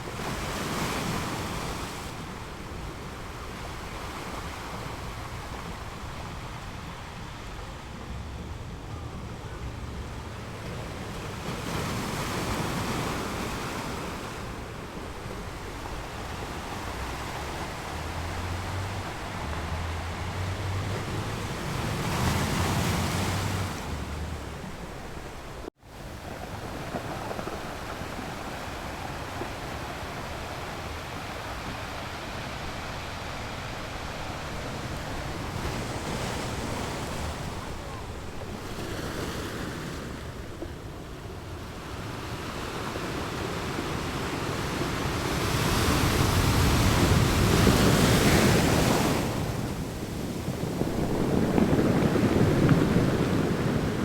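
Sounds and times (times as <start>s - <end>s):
low wind rumble: 0.0s - 54.0s
ocean waves breaking on shore: 0.0s - 54.0s.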